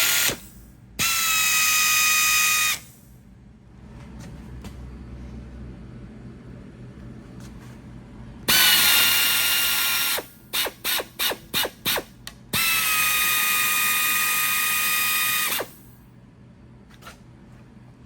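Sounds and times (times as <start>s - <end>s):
tapping arm motor whining: 0.0s - 3.0s, 8.5s - 15.8s.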